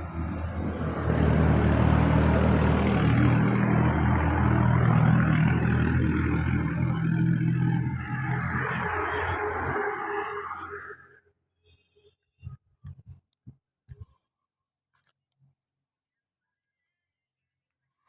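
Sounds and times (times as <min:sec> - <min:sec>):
engine running: 0:00.0 - 0:10.1.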